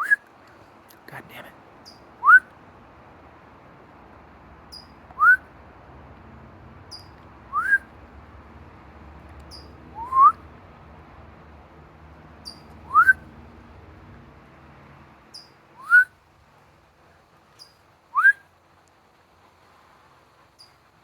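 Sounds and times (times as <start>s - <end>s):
songbird chirping: 4.7s - 5.5s, 6.9s - 7.9s, 9.3s - 10.4s, 12.2s - 13.4s, 15.2s - 16.2s
person whistling: 10.0s - 10.4s.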